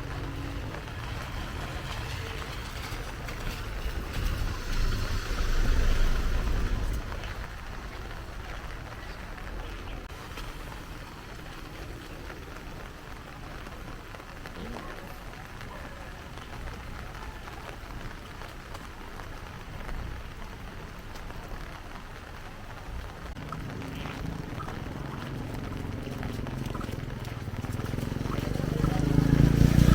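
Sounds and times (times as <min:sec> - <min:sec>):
low rumble: 0:00.0 - 0:08.4
heavy rain falling: 0:00.0 - 0:29.9.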